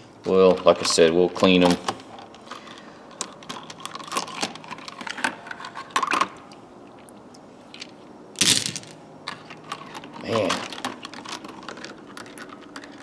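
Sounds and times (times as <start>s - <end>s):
steel sockets clinking: 8.4s - 8.9s.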